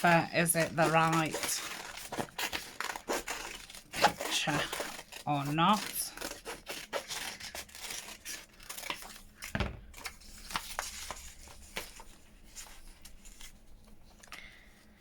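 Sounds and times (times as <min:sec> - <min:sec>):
scissors snipping paper: 0:00.0 - 0:09.2
paper rustling: 0:00.0 - 0:15.0.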